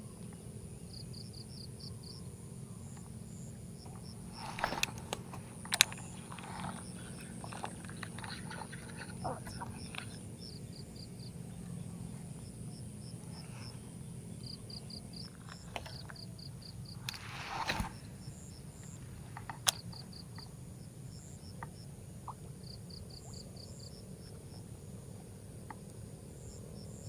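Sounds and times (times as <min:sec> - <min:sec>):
insects chirping: 0:00.0 - 0:27.0
sharp click: 0:17.0 - 0:20.5
brief noisy rush: 0:17.1 - 0:18.3.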